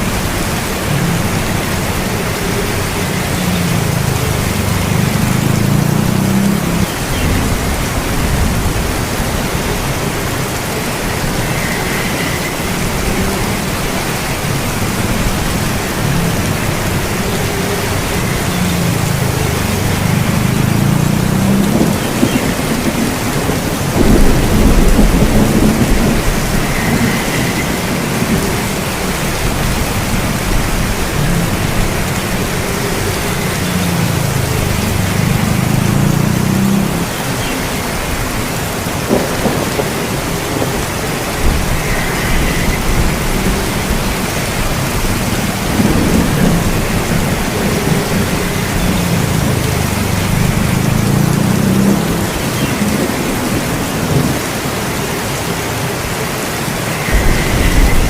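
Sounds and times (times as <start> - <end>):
steady rain: 0.0 - 58.0
rolling thunder: 6.3 - 32.5, 39.0 - 54.6, 56.8 - 58.0.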